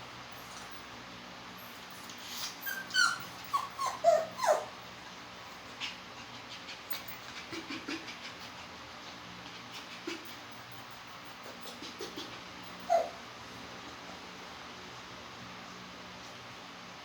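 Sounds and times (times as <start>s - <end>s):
dog whimpering: 1.9s - 4.8s, 11.2s - 13.2s.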